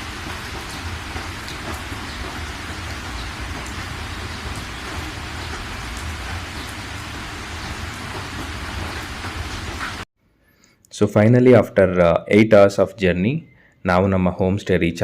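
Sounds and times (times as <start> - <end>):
steady rain: 0.0 - 10.1.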